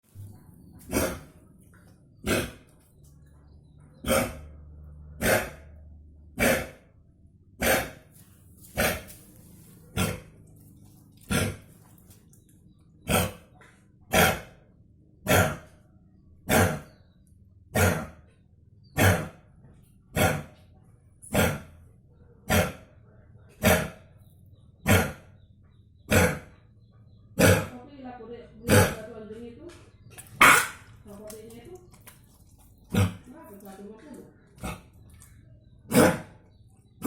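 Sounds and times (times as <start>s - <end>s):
dog coughing: 0.9s - 1.3s, 2.2s - 2.6s, 4.0s - 4.4s, 5.2s - 5.6s, 6.4s - 6.8s, 7.6s - 8.0s, 11.3s - 11.7s, 14.1s - 14.5s, 15.3s - 15.7s, 16.5s - 16.9s, 17.7s - 18.2s, 19.0s - 19.4s, 20.2s - 20.5s, 21.3s - 21.7s, 22.5s - 22.8s, 23.6s - 24.0s, 24.8s - 25.2s, 26.1s - 26.5s, 27.4s - 27.8s, 30.4s - 30.9s, 35.9s - 36.3s.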